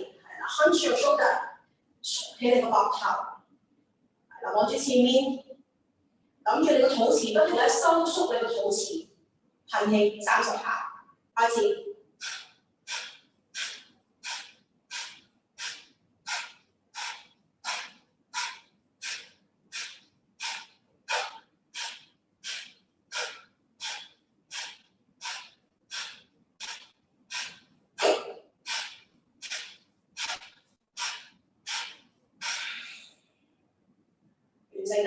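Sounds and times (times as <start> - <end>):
woman forceful breathing exhalations: 12.2 - 33.2.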